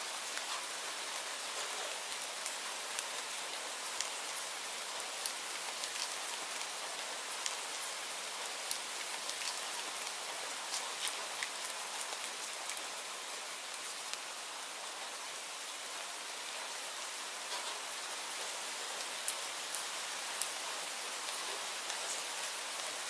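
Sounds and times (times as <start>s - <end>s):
steady rain hiss: 0.0s - 23.0s
raindrops ticking: 8.6s - 12.8s.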